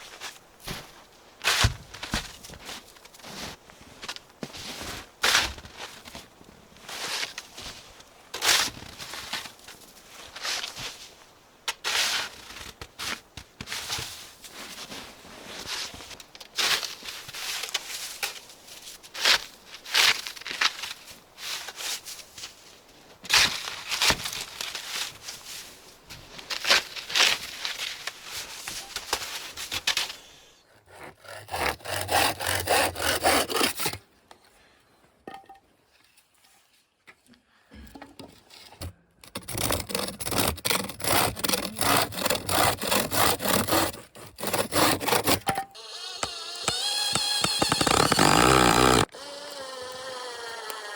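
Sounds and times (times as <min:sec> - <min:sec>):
hand saw rasping through wood: 0:30.7 - 0:34.0, 0:39.2 - 0:50.9.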